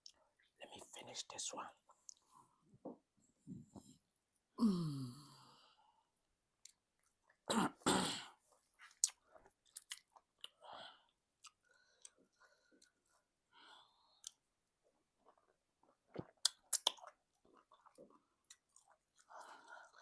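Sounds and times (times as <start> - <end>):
wet mouth eating sounds: 8.8 - 10.6, 14.2 - 20.0.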